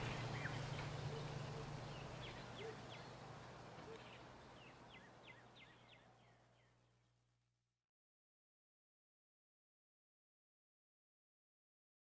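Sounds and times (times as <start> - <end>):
bird chirps: 0.0 - 3.2, 3.8 - 6.8
low hiss: 0.0 - 7.2.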